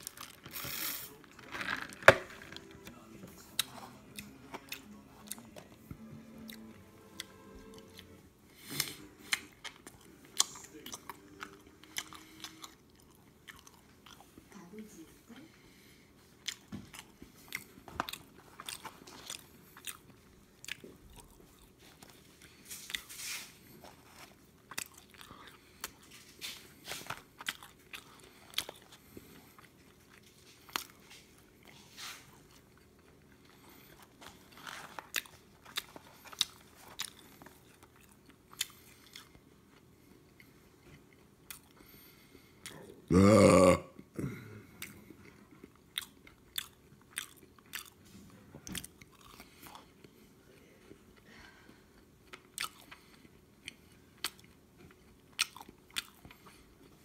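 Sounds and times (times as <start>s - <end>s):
person chewing crunchy fries: 0.0s - 14.5s, 16.2s - 57.0s
loud burp: 43.1s - 44.6s.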